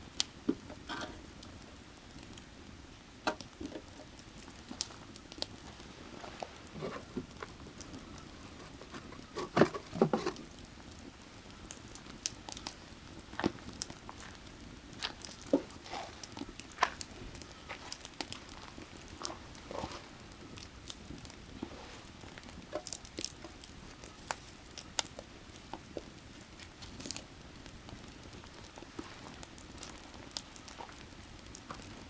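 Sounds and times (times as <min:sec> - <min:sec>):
firewood crackling and popping: 0:00.0 - 0:32.0.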